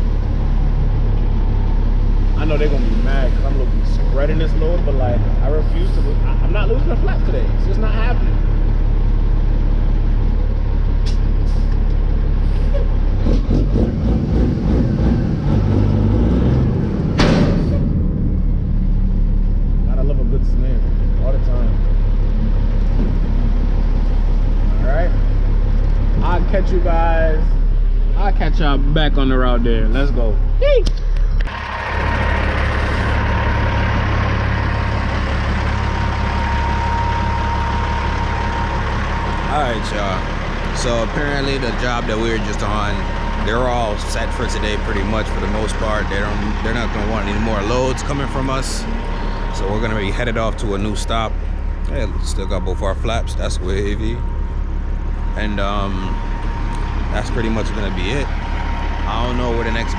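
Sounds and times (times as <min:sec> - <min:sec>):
truck engine running: 0:00.0 - 0:59.9
knocks and clatter: 0:16.4 - 0:19.0
thin steady whine: 0:18.3 - 0:59.9.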